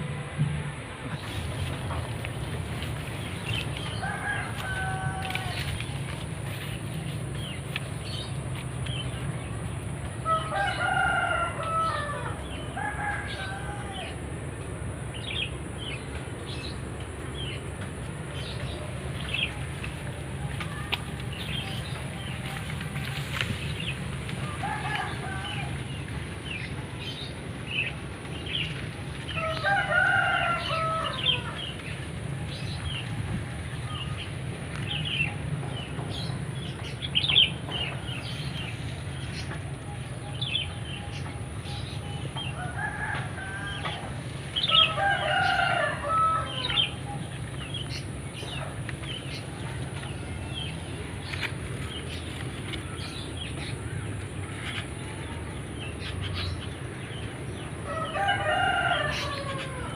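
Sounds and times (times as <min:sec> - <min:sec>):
steady low hum: 0:00.0 - 0:59.9
rooster crowing: 0:03.9 - 0:05.8, 0:10.2 - 0:14.2, 0:24.4 - 0:25.9, 0:29.4 - 0:31.8, 0:42.5 - 0:47.0, 0:57.8 - 0:59.9.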